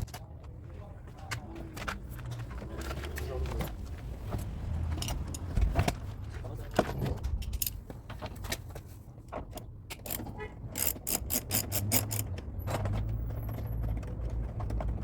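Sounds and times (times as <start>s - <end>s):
hand tools clicking: 9.9s - 12.4s.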